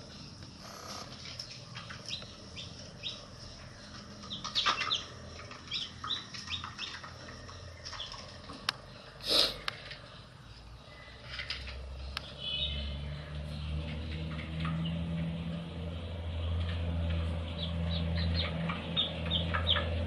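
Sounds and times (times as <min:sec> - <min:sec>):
baby chicks peeping: 0:00.0 - 0:08.7, 0:12.0 - 0:15.6, 0:16.4 - 0:20.0.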